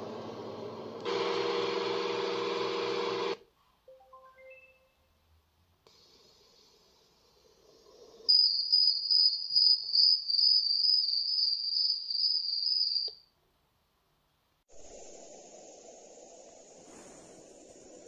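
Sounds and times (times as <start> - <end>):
cricket chirping soundscape: 8.3 - 13.3.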